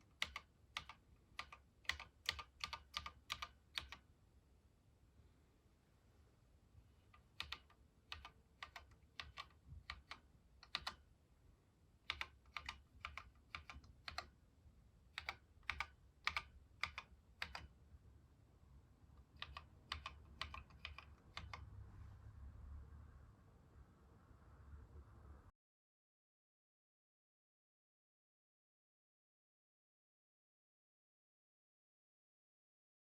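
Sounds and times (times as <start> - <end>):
computer keyboard typing: 0.0 - 4.1, 7.1 - 11.1, 12.0 - 14.4, 15.1 - 17.8, 19.2 - 21.7.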